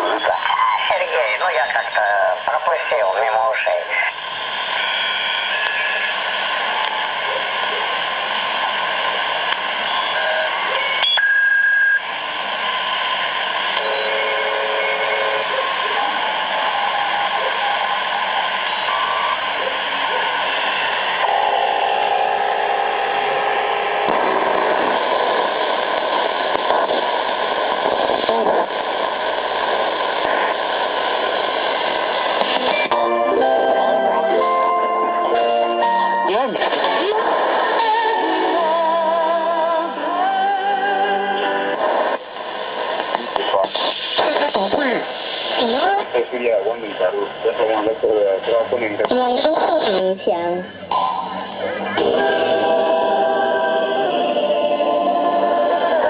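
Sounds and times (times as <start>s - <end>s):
faint radio voices: 0.0s - 11.0s, 12.6s - 21.4s, 23.1s - 33.0s, 36.2s - 37.9s, 41.4s - 52.2s
radio static and hiss: 0.0s - 40.1s, 40.8s - 54.1s.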